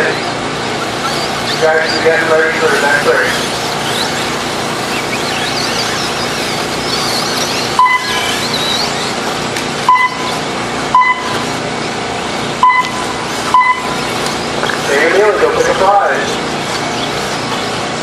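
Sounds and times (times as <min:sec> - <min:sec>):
faint rising and falling whines: 0:00.0 - 0:18.0
outdoor track noise: 0:00.0 - 0:18.0
short electronic beeps: 0:07.0 - 0:08.9, 0:09.9 - 0:11.4, 0:12.6 - 0:14.1.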